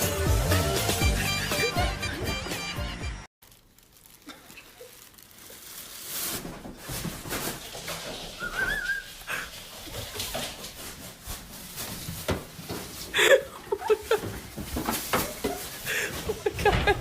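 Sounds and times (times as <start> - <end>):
knocks and rustles: 6.2 - 8.8, 9.8 - 13.1, 14.0 - 17.0.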